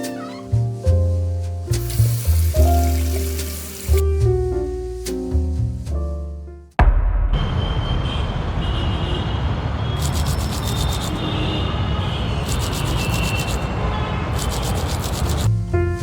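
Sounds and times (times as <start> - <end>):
loud rushing noise with rumble: 6.8 - 15.6
fast high-pitched ticking: 10.0 - 11.2, 12.4 - 13.7, 14.4 - 15.5.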